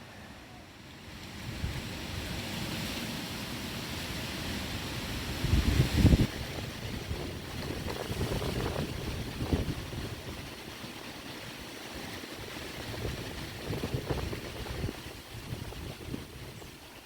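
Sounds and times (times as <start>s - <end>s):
wind blowing: 1.2s - 3.0s, 4.0s - 17.0s
wind buffeting microphone: 5.2s - 17.0s.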